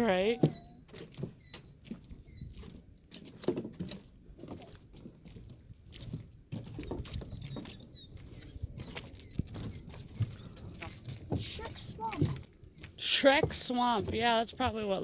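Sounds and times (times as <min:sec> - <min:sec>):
small birds chirping: 0:00.0 - 0:02.8, 0:07.1 - 0:15.0
footsteps on dirt trail: 0:00.0 - 0:15.0.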